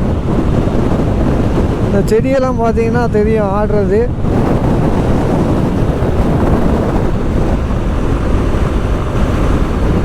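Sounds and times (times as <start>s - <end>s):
road noise: 0.0s - 10.0s
wind buffeting microphone: 0.0s - 10.0s.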